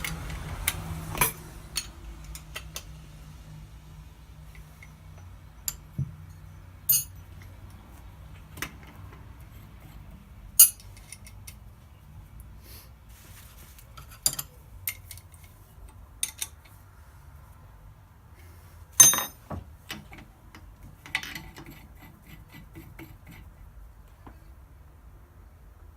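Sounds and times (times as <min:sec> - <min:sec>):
small metal parts clinking: 0:04.7 - 0:07.6, 0:10.6 - 0:11.7, 0:19.0 - 0:20.0.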